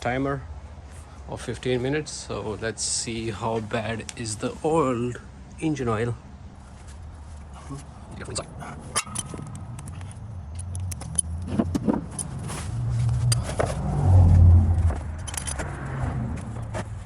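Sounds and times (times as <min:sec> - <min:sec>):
car keys jangling: 0:08.9 - 0:12.5, 0:15.2 - 0:15.6
clicks and knocks of handling: 0:09.0 - 0:13.7.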